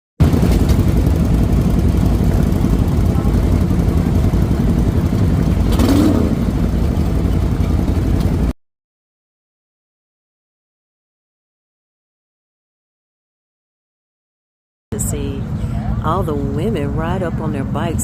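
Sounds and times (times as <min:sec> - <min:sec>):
motorcycle engines rumbling: 0:00.2 - 0:08.5, 0:15.0 - 0:18.0.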